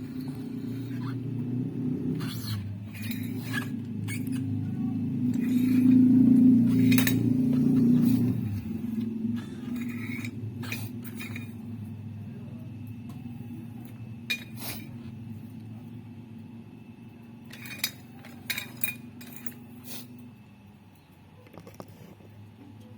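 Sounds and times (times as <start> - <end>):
sharp metallic clinks: 0.0 - 12.0, 17.3 - 20.3
low motor hum: 0.0 - 21.3.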